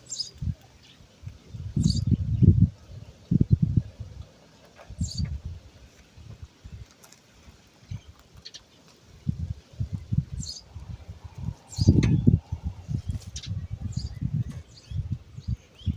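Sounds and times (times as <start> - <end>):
small bird chirping: 0.0 - 3.9, 4.9 - 5.4, 7.8 - 15.9.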